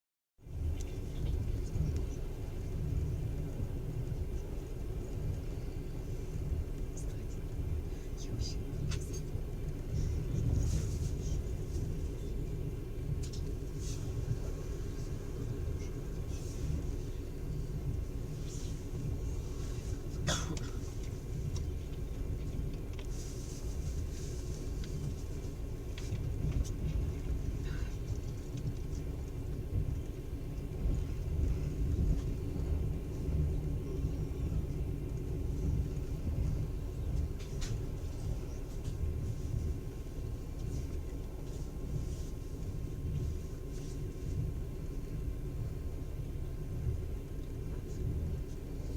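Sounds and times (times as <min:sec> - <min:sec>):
train rumble from inside carriage: 0:00.4 - 0:48.9
light clicks and rattles: 0:15.8 - 0:44.6.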